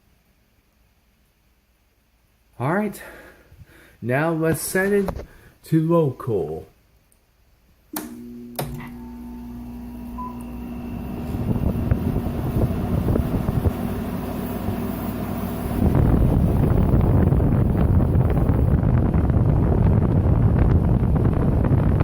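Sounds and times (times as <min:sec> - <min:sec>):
air conditioner humming: 0:00.0 - 0:22.0
fan air rushing: 0:08.0 - 0:22.0.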